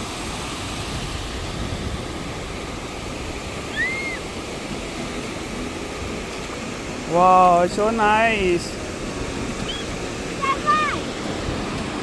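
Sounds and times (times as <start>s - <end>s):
waves washing on beach: 0.0s - 12.0s
high chirp: 9.6s - 10.0s.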